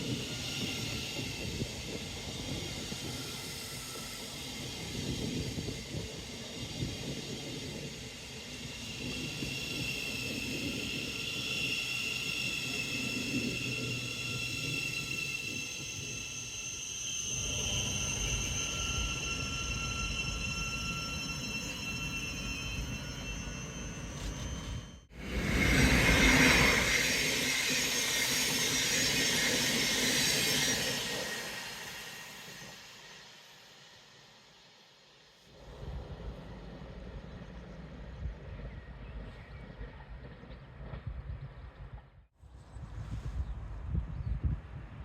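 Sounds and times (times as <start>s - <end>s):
train whining tones: 0.0s - 41.8s
train rumble: 35.5s - 42.2s.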